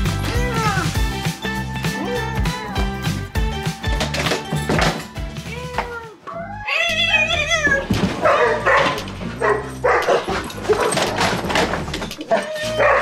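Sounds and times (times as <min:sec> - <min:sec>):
dog barking: 0:08.2 - 0:11.1, 0:12.8 - 0:13.0.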